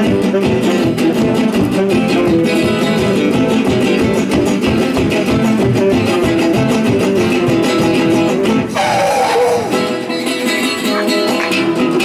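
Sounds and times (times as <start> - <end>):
acoustic guitar playing: 0.0 - 12.0.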